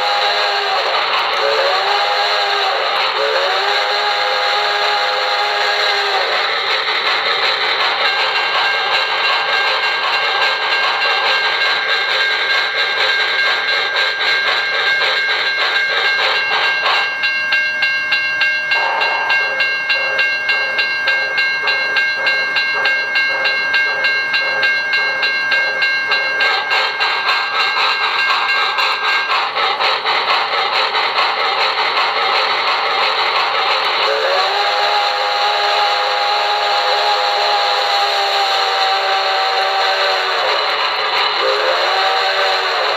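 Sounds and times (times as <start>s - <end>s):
steam whistle: 0.0s - 6.8s, 18.7s - 21.4s, 33.8s - 42.9s
steam locomotive chuffing: 0.0s - 42.9s.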